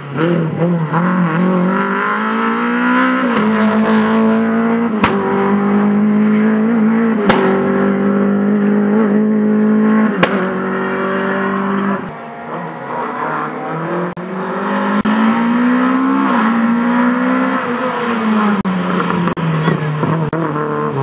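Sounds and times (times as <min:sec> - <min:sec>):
rally car engine at high revs: 0:00.0 - 0:21.0.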